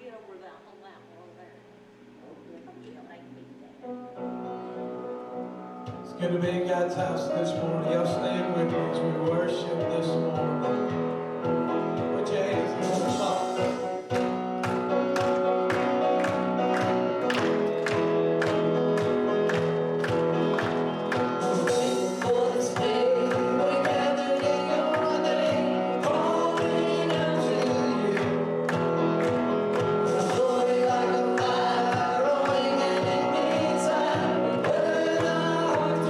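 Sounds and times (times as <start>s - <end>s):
steady drum beat: 12.0s - 36.0s
voices singing: 12.1s - 14.2s, 20.6s - 36.0s.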